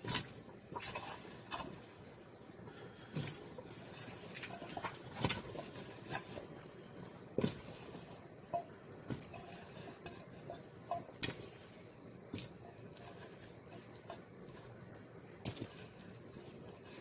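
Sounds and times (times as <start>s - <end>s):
faint steady hiss: 0.0s - 17.0s
clicks and knocks at a pot: 8.4s - 11.6s.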